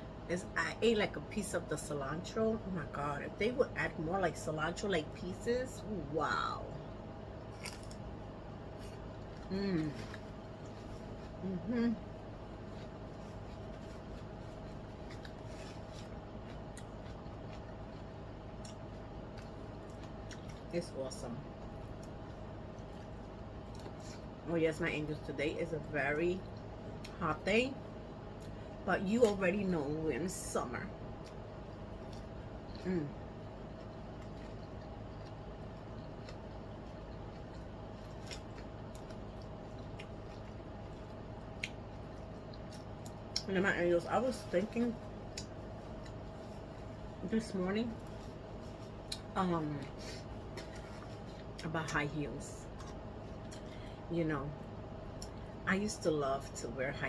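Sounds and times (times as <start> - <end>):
background hum: 0.0 - 57.0
crisp crunches: 7.5 - 8.1, 12.5 - 20.7, 33.6 - 43.5
person eating salad: 7.5 - 20.7, 31.2 - 43.5
person chewing: 12.4 - 20.7, 31.2 - 43.5.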